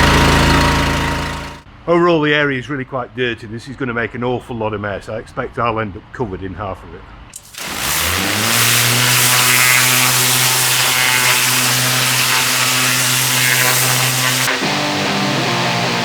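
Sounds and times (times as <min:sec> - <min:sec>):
pressure washer spray hissing: 0:07.4 - 0:14.8.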